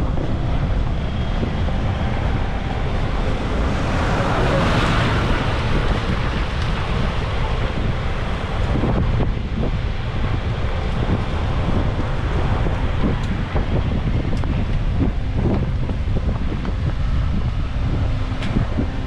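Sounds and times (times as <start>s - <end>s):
vehicle passing close by: 0.0s - 15.0s
roadside traffic: 0.0s - 19.0s
wind buffeting microphone: 0.0s - 19.0s.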